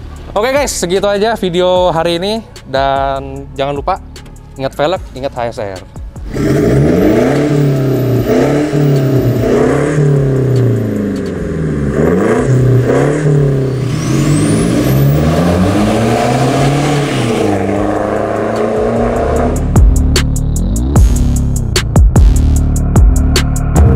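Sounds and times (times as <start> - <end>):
diesel engine revving: 6.2 - 21.8.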